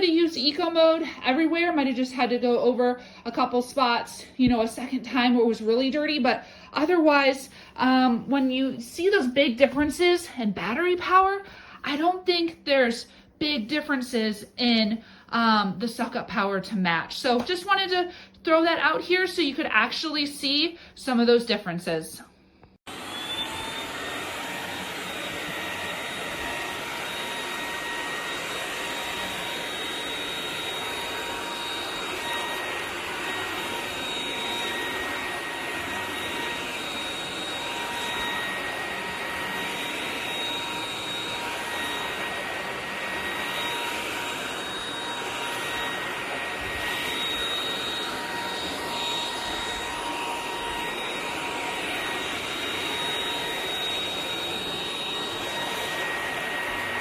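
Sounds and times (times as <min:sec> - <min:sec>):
stick vacuum motor whine: 0:22.9 - 0:57.0.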